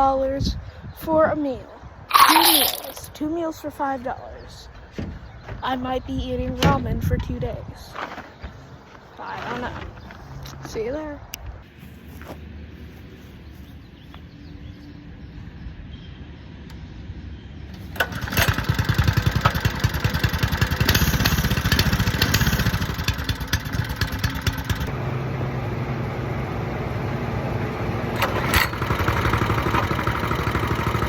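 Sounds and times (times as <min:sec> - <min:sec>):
small motorbike engine running: 0:17.8 - 0:31.0.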